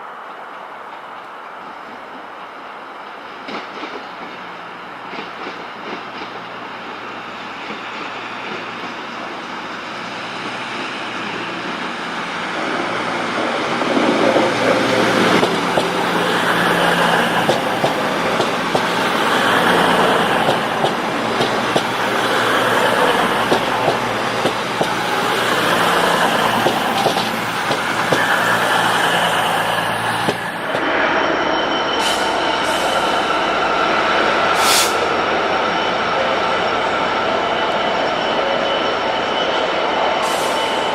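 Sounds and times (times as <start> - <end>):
train rumbling past: 0.0 - 40.9
short hisses: 34.6 - 35.0.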